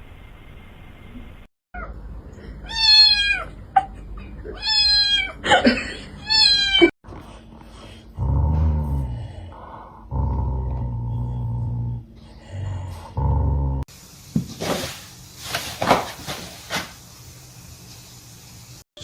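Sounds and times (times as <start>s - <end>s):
cat meowing: 2.7s - 3.5s, 4.6s - 5.4s, 6.2s - 6.9s.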